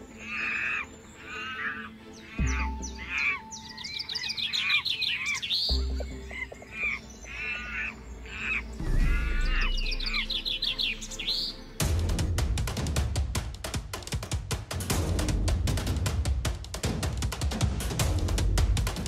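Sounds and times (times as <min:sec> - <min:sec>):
birds chirping and trilling: 0:00.0 - 0:12.3
low steady music bed: 0:00.0 - 0:19.0
drum-heavy music: 0:08.8 - 0:19.0.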